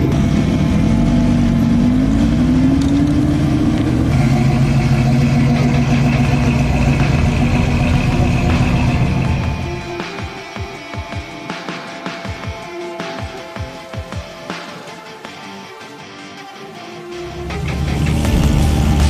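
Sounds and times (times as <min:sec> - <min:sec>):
car engine running: 0:00.0 - 0:10.3, 0:17.2 - 0:19.0.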